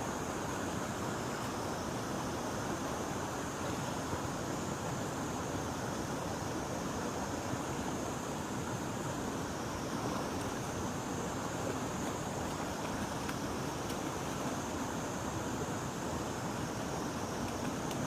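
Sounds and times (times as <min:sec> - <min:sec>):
river water rushing: 0:00.0 - 0:18.0
faint ticks: 0:17.4 - 0:18.0.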